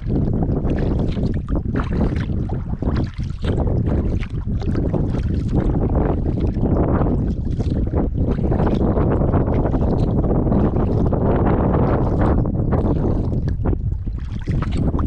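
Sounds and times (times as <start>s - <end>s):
paddle splashing water: 0.0s - 15.0s
wind buffeting microphone: 0.0s - 15.0s.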